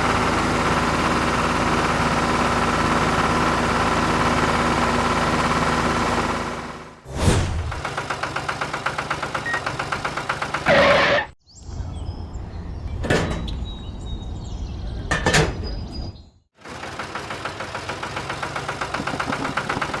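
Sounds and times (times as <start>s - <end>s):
small engine chugging: 7.8s - 11.0s, 16.6s - 20.0s.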